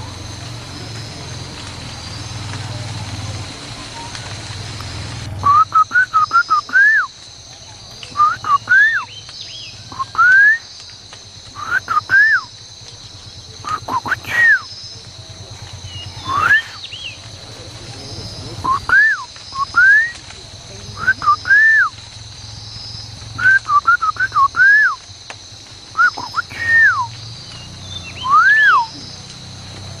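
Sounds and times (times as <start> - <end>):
bird whistled calls: 5.4 - 7.1, 8.1 - 10.7, 11.6 - 12.5, 13.6 - 14.9, 15.8 - 17.2, 18.6 - 20.2, 21.0 - 22.0, 23.4 - 25.0, 25.9 - 29.1.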